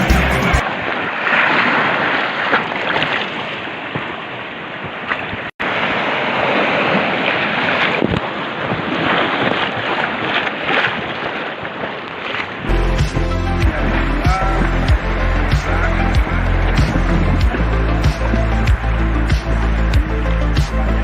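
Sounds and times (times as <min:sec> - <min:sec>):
river rapids rushing: 0:12.8 - 0:21.0.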